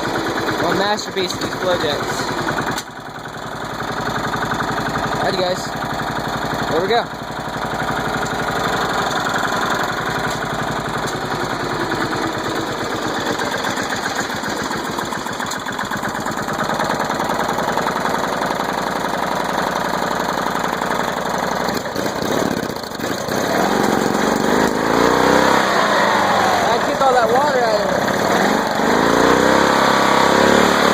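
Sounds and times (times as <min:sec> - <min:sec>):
riding mower engine running: 0:00.0 - 0:30.9.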